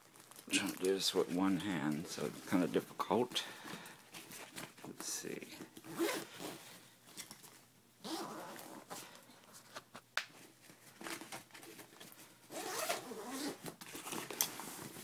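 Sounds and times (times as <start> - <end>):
zipper pulled open: 5.9 - 6.6, 8.0 - 9.0, 12.5 - 14.2.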